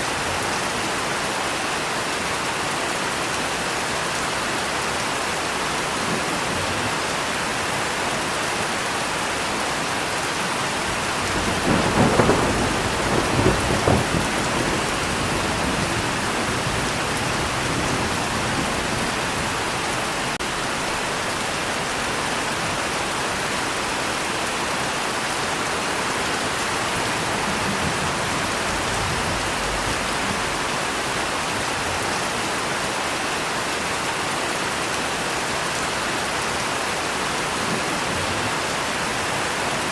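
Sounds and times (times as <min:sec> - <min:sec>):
heavy rain: 0:00.0 - 0:39.9
thunder rumbling: 0:10.8 - 0:21.2, 0:26.2 - 0:32.0.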